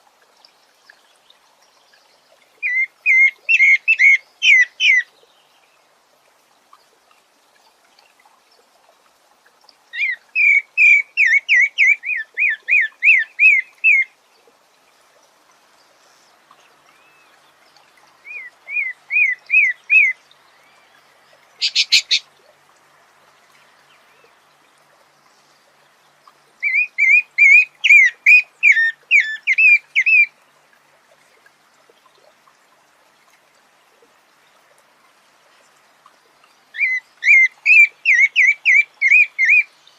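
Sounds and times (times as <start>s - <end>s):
harsh bird call: 21.6s - 22.2s
thrush singing whistled notes: 21.6s - 22.2s, 36.8s - 39.7s.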